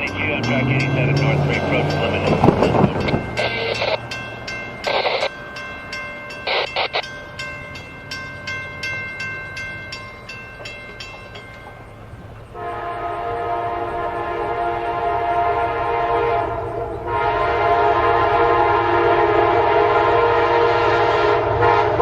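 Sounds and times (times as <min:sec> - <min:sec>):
locomotive air horn blasts: 0:00.0 - 0:04.1, 0:12.5 - 0:22.0
bell ringing rapidly: 0:00.0 - 0:11.9.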